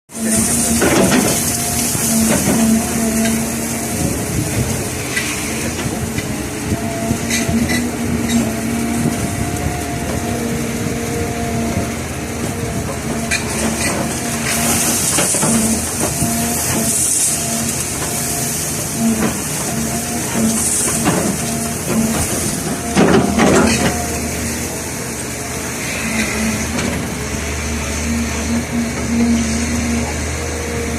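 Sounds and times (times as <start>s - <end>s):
diesel engine under load: 0.1s - 30.9s
machinery knocks and clatter: 0.2s - 10.3s, 11.7s - 24.3s
hissing rush: 0.2s - 30.7s.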